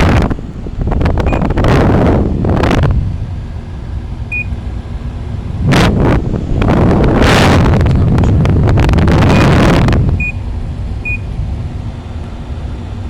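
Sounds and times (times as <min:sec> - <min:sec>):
air conditioner running: 0:00.0 - 0:13.0
short high beeps: 0:01.3 - 0:01.6, 0:04.3 - 0:04.6, 0:10.2 - 0:10.4, 0:11.0 - 0:11.3.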